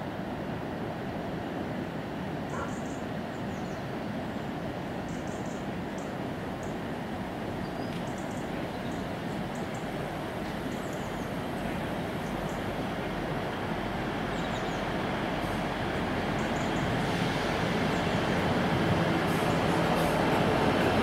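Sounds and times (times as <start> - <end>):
diesel train approaching: 0.0 - 21.0.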